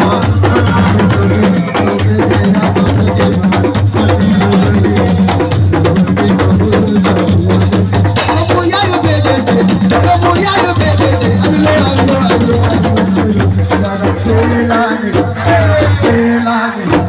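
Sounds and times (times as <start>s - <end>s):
bass line: 0.0s - 8.5s
drum and percussion band music: 0.0s - 17.0s.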